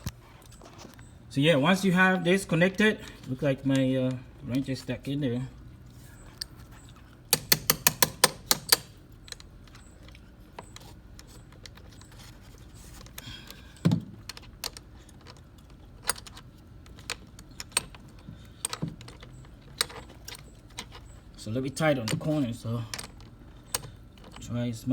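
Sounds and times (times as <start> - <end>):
ratchet wrench clicking: 7.3 - 8.9
metal knock and taps: 7.4 - 8.9.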